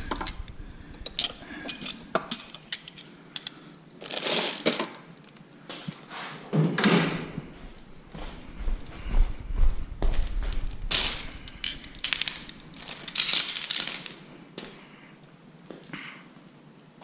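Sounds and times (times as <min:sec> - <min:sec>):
metal hand tools clinking: 0:01.0 - 0:03.5, 0:11.0 - 0:14.3
rustling: 0:07.2 - 0:14.0.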